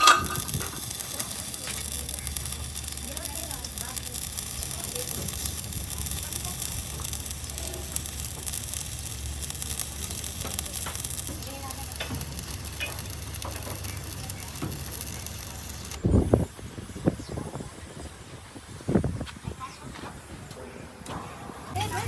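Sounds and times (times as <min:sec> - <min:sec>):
sharp clicks: 0:00.0 - 0:16.0
arc welding crackling sizzle: 0:00.0 - 0:18.0, 0:21.7 - 0:22.0.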